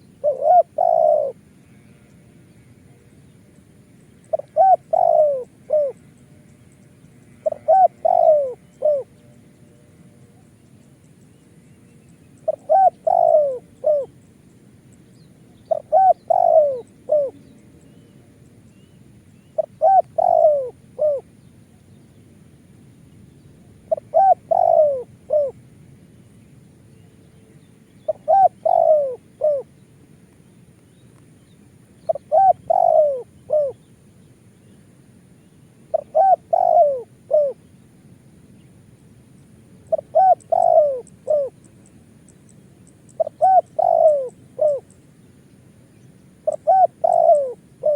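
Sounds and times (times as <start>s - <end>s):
dove cooing: 0.0s - 2.1s, 4.3s - 6.1s, 7.4s - 9.3s, 12.4s - 14.2s, 15.4s - 17.5s, 19.5s - 21.3s, 23.6s - 25.6s, 28.0s - 29.7s, 32.0s - 33.9s, 35.8s - 37.7s, 39.8s - 41.9s, 42.9s - 45.0s, 46.4s - 47.9s.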